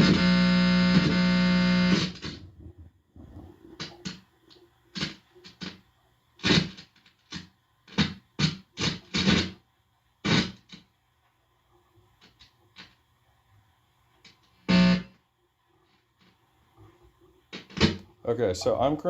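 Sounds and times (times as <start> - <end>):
steady amplifier buzz: 0.0 - 4.2, 6.4 - 9.6, 10.2 - 10.8, 14.3 - 15.2
scratchy crackles through amplifier: 0.0 - 9.6, 10.2 - 10.9, 14.2 - 15.2, 15.8 - 19.0.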